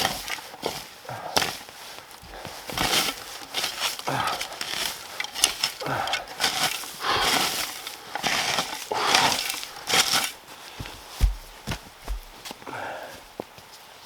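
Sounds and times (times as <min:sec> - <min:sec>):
pine needles and twigs crunching: 0:00.0 - 0:13.9
dull thumps: 0:02.2 - 0:12.7.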